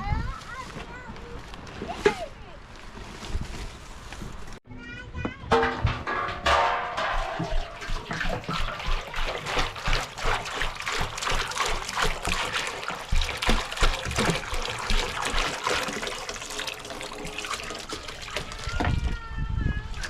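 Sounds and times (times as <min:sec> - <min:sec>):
water splashing and trickling: 0:05.5 - 0:19.3.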